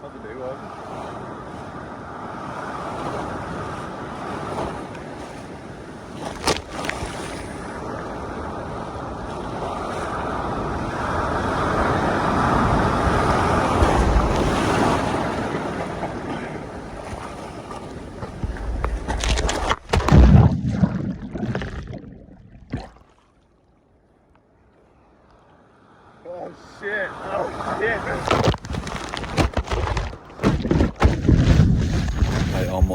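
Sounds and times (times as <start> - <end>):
ocean surf breaking and rushing: 0.0 - 22.1, 25.9 - 32.9
water splashes: 6.0 - 8.2, 11.8 - 23.7, 27.2 - 32.9.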